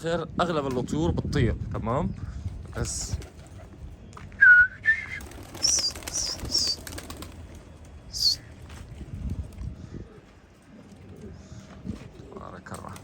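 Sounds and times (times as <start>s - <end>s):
pigeon wings flapping: 5.0s - 8.4s.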